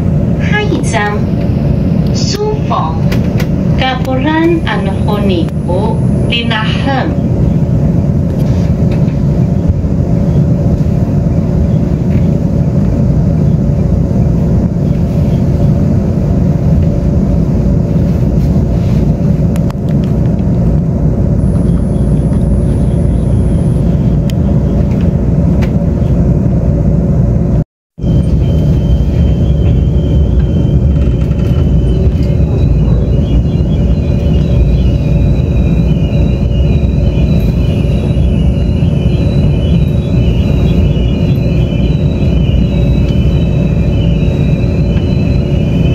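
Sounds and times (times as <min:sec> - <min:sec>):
steady hum: 0:00.0 - 0:45.9
thin high whine: 0:00.0 - 0:45.9
train running rumble: 0:00.0 - 0:45.9.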